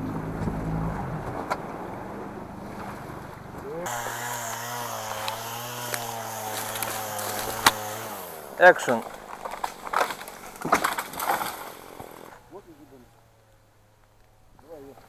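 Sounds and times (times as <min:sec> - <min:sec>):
boat motor running: 0:00.0 - 0:09.6.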